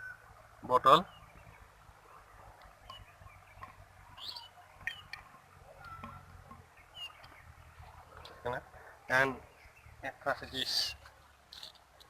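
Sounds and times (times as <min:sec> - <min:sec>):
short high bird chirps: 0:04.2 - 0:05.2, 0:06.8 - 0:07.4.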